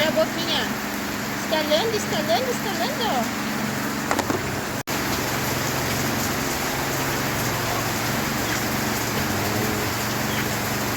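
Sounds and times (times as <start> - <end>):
heavy rain falling: 0.0 - 10.9.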